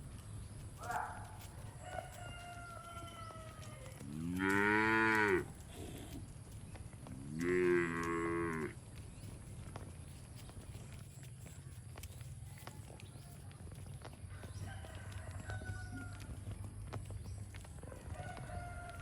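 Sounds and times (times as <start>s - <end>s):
cattle mooing: 4.0s - 6.0s, 7.2s - 8.8s.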